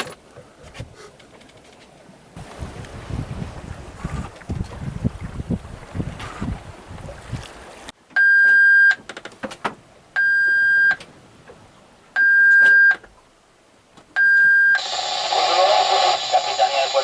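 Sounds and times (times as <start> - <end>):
wind on microphone: 2.4 - 7.9
electronic alarm beeping: 10.2 - 11.0, 12.2 - 13.0, 14.2 - 14.9.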